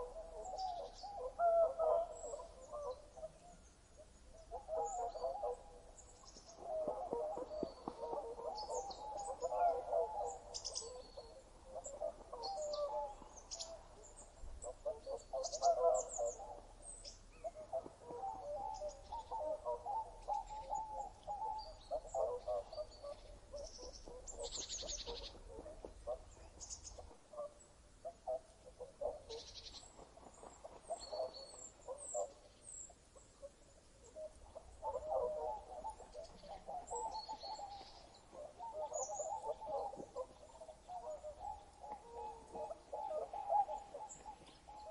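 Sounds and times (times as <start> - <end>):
chorus of lower bird calls: 0.0 - 44.9.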